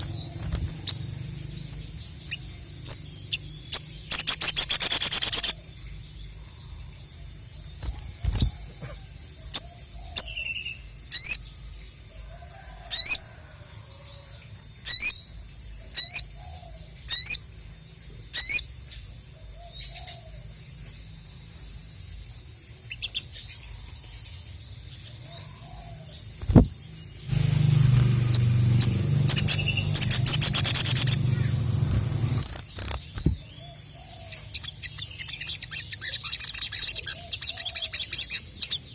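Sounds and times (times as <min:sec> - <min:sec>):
sunbird chirping and whistling: 0:00.0 - 0:05.6, 0:26.4 - 0:38.9
rapid bird chattering: 0:02.1 - 0:05.6, 0:26.4 - 0:38.8
low rumble: 0:26.4 - 0:33.5.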